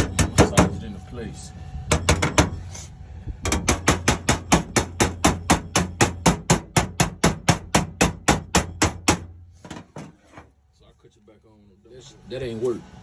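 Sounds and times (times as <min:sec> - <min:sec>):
hammer tapping sheet metal: 0:00.0 - 0:00.8, 0:01.9 - 0:02.6, 0:03.4 - 0:10.1.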